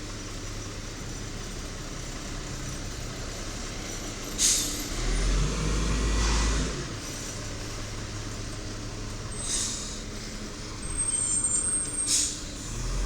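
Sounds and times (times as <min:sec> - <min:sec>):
diesel truck engine: 0:00.0 - 0:13.0
sharp air hiss: 0:04.4 - 0:04.8, 0:09.4 - 0:10.0, 0:12.0 - 0:12.5.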